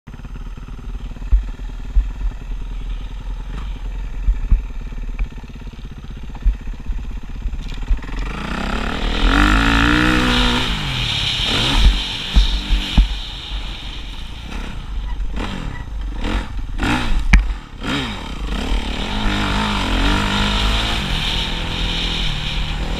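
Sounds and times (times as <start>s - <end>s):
low rumble: 0.1s - 22.9s
motocross engine revving: 0.1s - 22.9s
scattered thumps: 0.8s - 13.4s, 14.4s - 17.8s.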